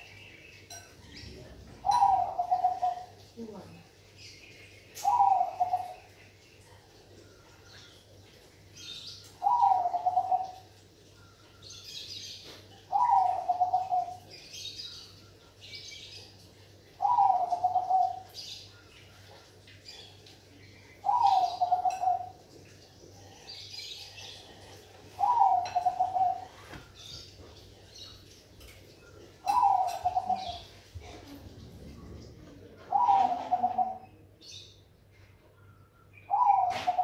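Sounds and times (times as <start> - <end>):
dove cooing: 1.8 - 3.2, 5.0 - 6.1, 9.4 - 10.7, 12.8 - 14.3, 17.0 - 18.3, 21.0 - 22.4, 24.6 - 26.7, 29.4 - 31.3, 32.8 - 34.2, 36.3 - 37.0.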